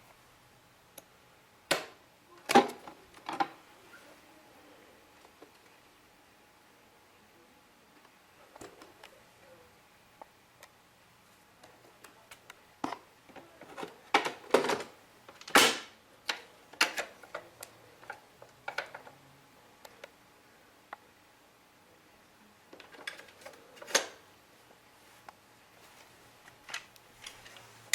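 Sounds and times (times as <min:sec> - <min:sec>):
plastic parts clicking and knocking: 0:01.7 - 0:03.6, 0:12.0 - 0:19.1, 0:22.7 - 0:24.2.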